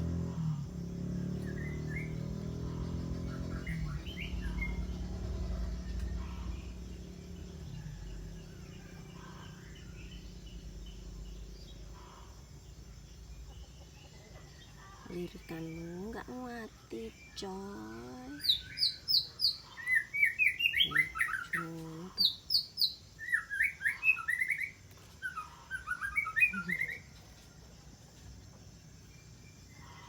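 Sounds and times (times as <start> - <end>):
low motor-like hum: 0.0 - 12.2
birds chirping: 0.0 - 30.0.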